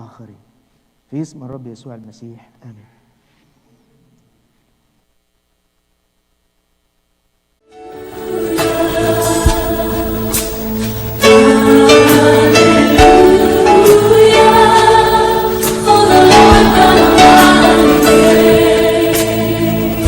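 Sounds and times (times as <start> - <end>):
instrumental accompaniment: 7.8 - 20.0
voices singing worship music: 7.9 - 20.0.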